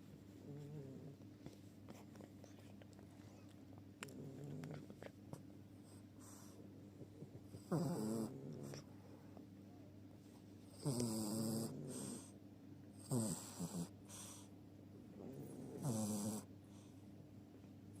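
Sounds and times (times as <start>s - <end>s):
small dog snoring: 0.4s - 1.2s, 3.3s - 5.1s, 5.8s - 8.9s, 10.7s - 12.4s, 13.0s - 14.5s, 15.1s - 16.9s.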